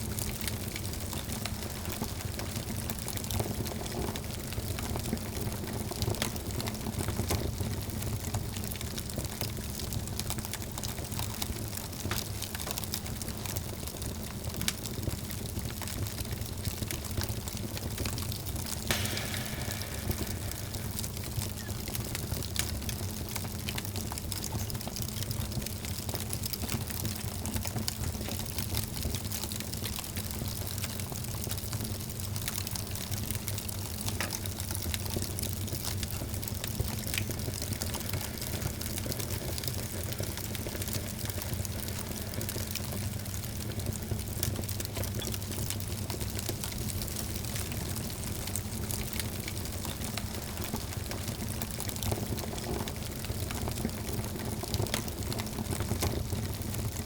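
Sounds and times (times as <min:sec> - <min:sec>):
low rumble of burning: 0:00.0 - 0:57.0
wood fire crackling and popping: 0:00.0 - 0:57.0.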